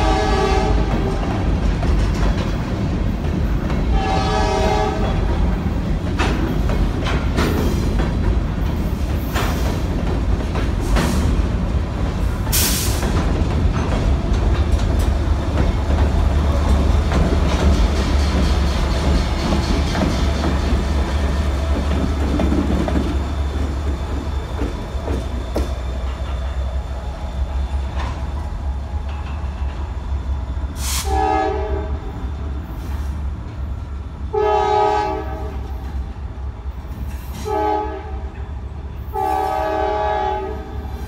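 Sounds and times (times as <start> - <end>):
locomotive horn blasts: 0.0 - 1.4, 3.9 - 5.3, 30.8 - 32.2, 34.3 - 35.7, 37.4 - 38.4, 39.1 - 40.9
diesel locomotive rumbling past: 0.0 - 41.0.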